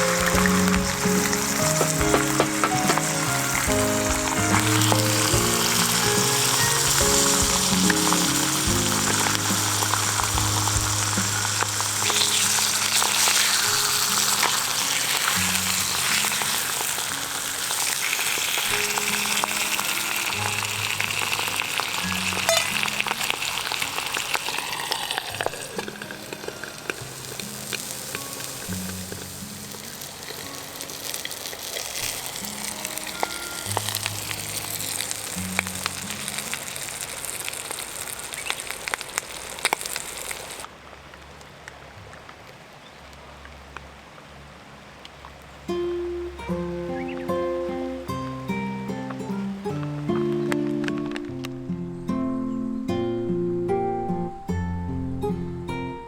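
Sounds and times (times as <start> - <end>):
background music: 0.0 - 37.4, 45.8 - 56.0
food sizzling in a pan: 0.0 - 40.7.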